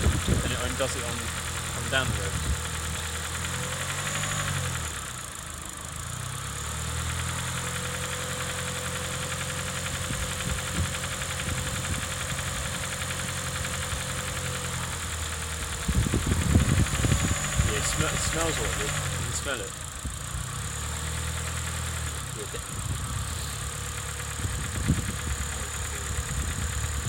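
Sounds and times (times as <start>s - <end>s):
loud rough noise: 0.0s - 5.1s, 9.9s - 27.0s
car engine running: 0.0s - 27.0s.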